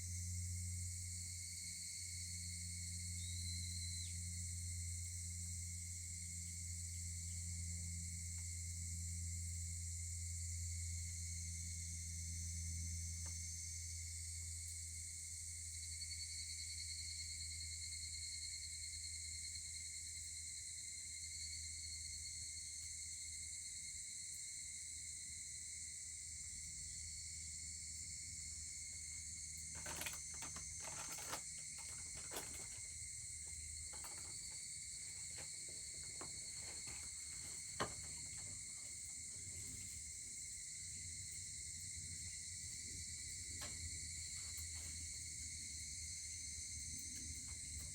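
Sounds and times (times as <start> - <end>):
crickets and insects chirping: 0.0 - 47.9
wood fire crackling and popping: 29.8 - 33.0.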